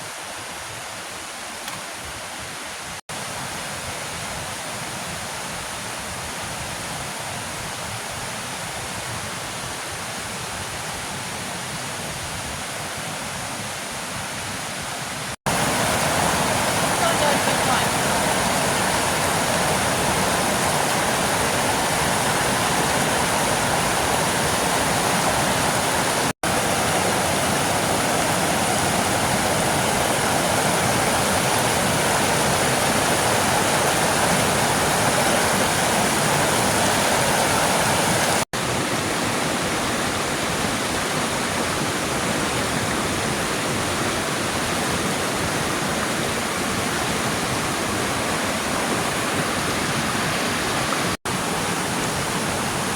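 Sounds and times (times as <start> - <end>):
waterfall running: 15.2 - 52.9.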